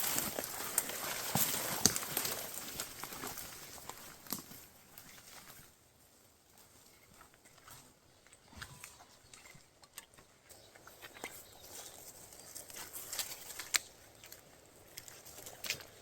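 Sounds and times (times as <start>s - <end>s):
footsteps through undergrowth: 0.0s - 9.6s, 10.5s - 16.0s
twig snapping: 13.1s - 15.9s.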